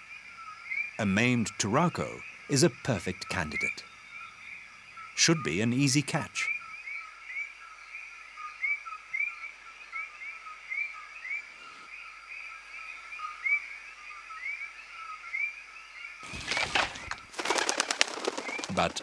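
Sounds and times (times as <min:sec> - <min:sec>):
loud flurry of rustling: 0:16.2 - 0:19.0.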